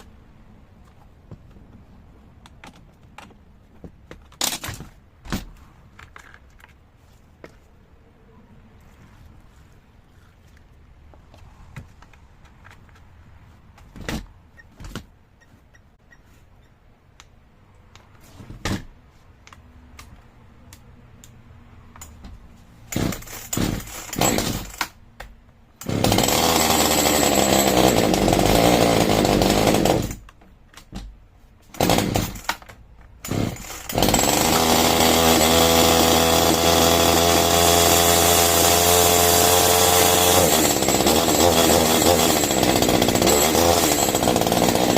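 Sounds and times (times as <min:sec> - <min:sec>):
chainsaw engine running: 0:23.0 - 0:24.8, 0:25.8 - 0:30.2, 0:31.8 - 0:32.4, 0:33.2 - 0:44.9.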